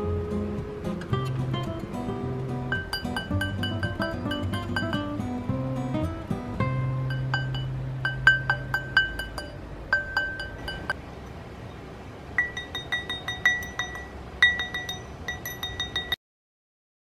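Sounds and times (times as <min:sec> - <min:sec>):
mallet striking metal mandrel: 0:02.7 - 0:05.6, 0:06.6 - 0:11.0, 0:12.4 - 0:16.2.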